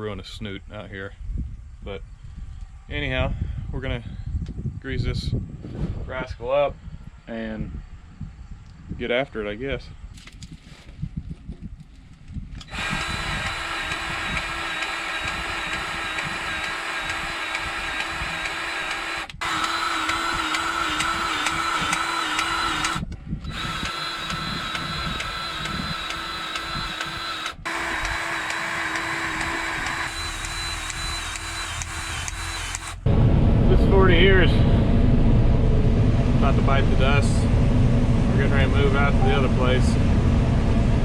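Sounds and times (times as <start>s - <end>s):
grease gun motor whining: 12.6s - 33.1s.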